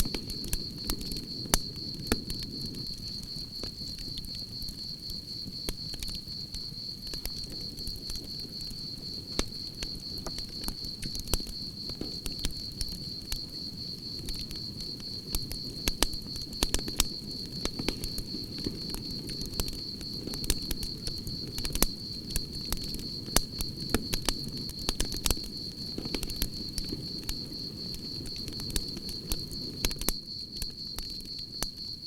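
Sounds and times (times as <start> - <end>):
campfire crackling and popping: 0.0 - 32.0
crickets trilling: 0.0 - 32.0.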